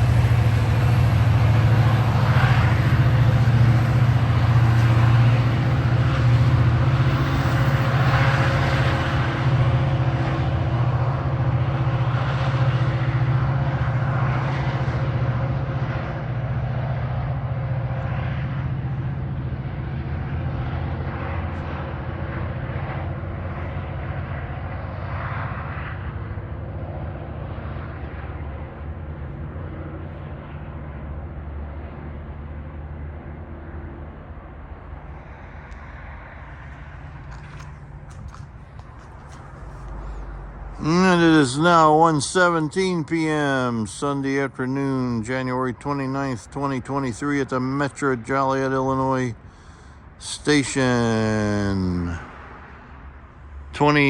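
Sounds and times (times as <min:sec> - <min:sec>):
wheel and rail noise: 0:00.0 - 0:42.0
diesel locomotive engine drone: 0:00.0 - 0:54.0.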